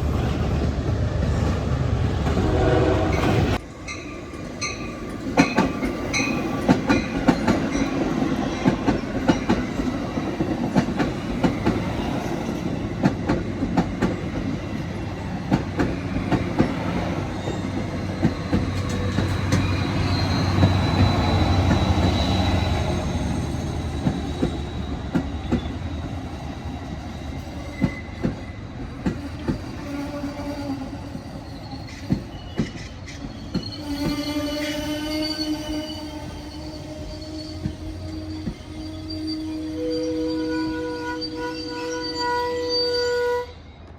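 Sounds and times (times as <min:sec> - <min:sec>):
train rumble: 0:00.0 - 0:42.1
train wheels clicking over rails: 0:04.3 - 0:27.1
high wheel squeal: 0:16.7 - 0:26.6, 0:29.3 - 0:43.8.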